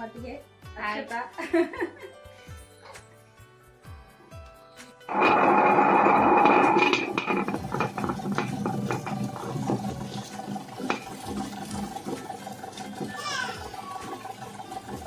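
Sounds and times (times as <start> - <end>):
contents clattering in grinder: 5.1 - 15.0
mixer grinder grinding: 5.1 - 15.0.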